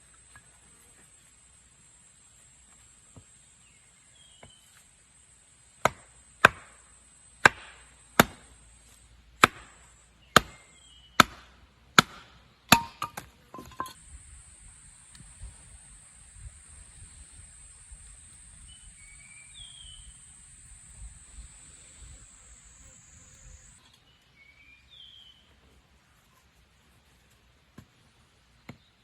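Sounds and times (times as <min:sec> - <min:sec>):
wood being chopped: 0:05.8 - 0:06.8, 0:07.4 - 0:08.5, 0:09.4 - 0:14.0.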